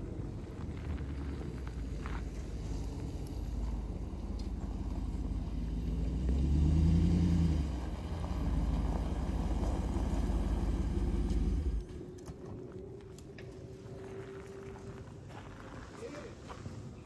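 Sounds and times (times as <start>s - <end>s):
vehicle engine running: 0.0s - 12.9s.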